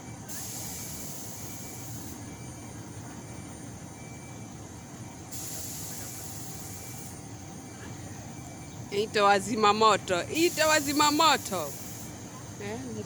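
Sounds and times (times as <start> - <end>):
fire truck engines idling: 0.0 - 13.0
high hiss: 5.3 - 7.0.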